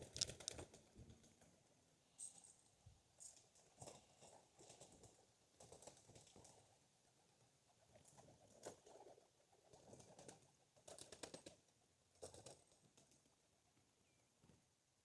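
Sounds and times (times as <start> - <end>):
pigeon wingbeats: 0.0 - 1.5, 3.7 - 6.7, 7.9 - 11.6, 12.2 - 13.2.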